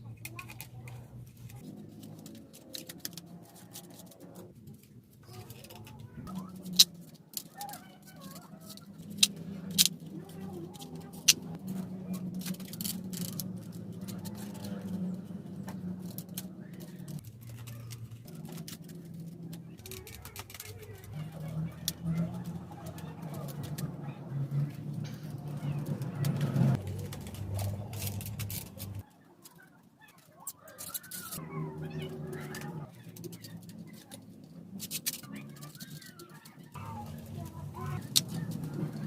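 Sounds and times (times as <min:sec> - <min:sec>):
low cooing drone: 0:00.4 - 0:29.0.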